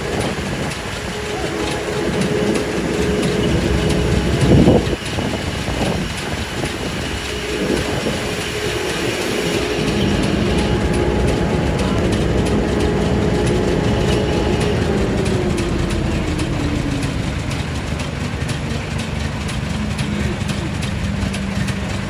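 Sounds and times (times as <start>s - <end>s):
whine falling in pitch: 0.0s - 18.5s
heavy vehicle rumbling: 0.0s - 22.0s.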